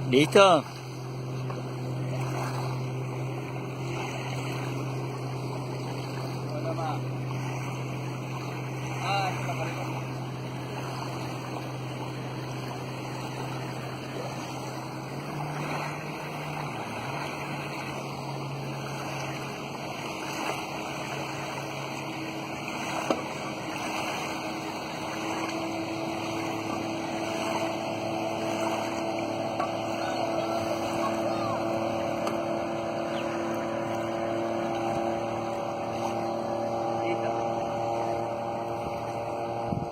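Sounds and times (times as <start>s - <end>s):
boat motor humming: 0.0s - 39.9s
water wash: 0.0s - 39.9s
wind noise: 39.5s - 39.9s.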